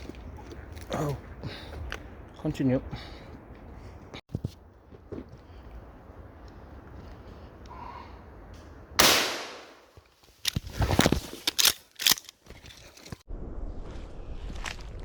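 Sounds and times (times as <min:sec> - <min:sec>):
rifle shot: 0:09.0 - 0:09.8.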